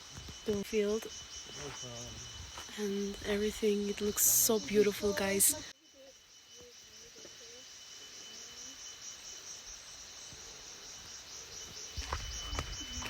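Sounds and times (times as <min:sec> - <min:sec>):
crickets trilling: 0:00.0 - 0:13.0
thin steady whine: 0:00.0 - 0:13.0.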